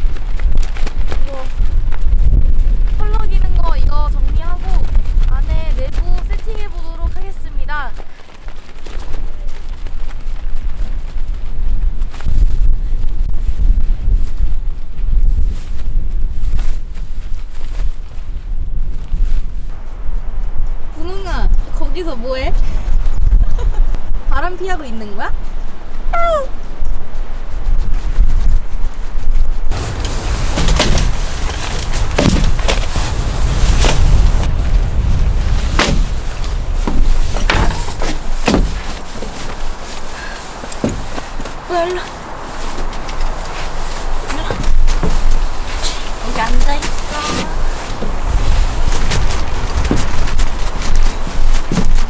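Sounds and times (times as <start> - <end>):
tent fabric snapping and flapping: 0.0 - 6.8, 29.3 - 52.0
wind buffeting microphone: 0.0 - 52.0.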